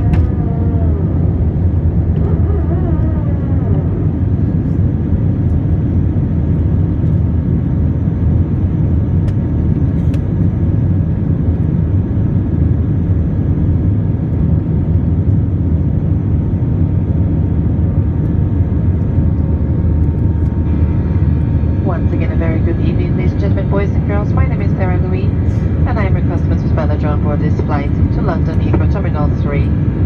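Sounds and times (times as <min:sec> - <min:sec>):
jet engine rumble: 0:00.0 - 0:30.0
faint whine tones: 0:16.8 - 0:30.0.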